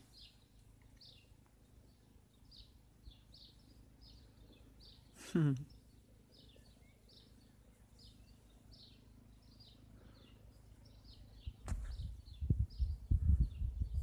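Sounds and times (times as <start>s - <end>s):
bird chirping: 0.0s - 14.0s
low thump and rumble: 11.6s - 14.0s.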